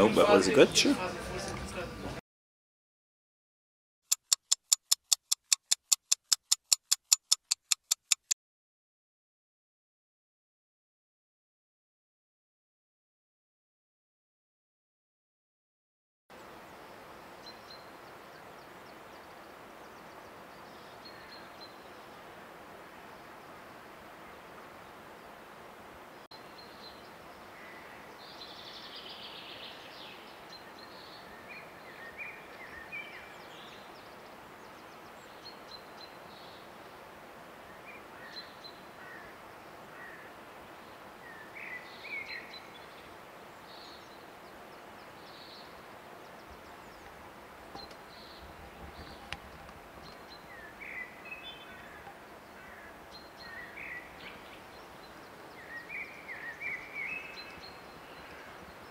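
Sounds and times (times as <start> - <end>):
steady outdoor hiss: 0.0 - 2.2, 16.3 - 58.9.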